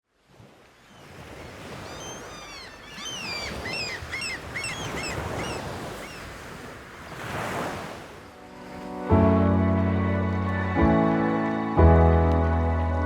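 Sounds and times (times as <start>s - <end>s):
rush of wind and water: 0.0s - 13.0s
birds calling: 0.8s - 7.3s.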